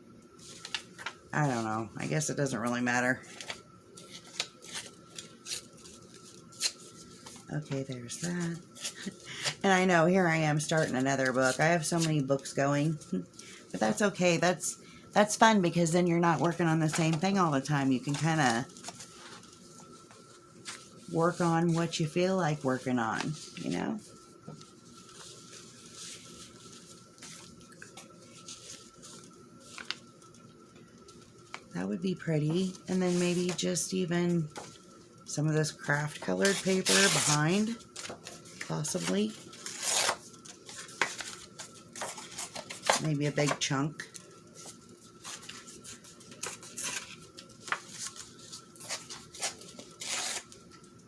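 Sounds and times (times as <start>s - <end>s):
faint steady hum: 0.0s - 51.0s
paper rustling and crinkling: 0.4s - 1.8s, 3.2s - 14.4s, 16.2s - 30.4s, 32.4s - 35.0s, 35.7s - 51.0s
paper rustling and tapping: 16.4s - 17.4s, 40.4s - 43.7s, 44.6s - 48.2s.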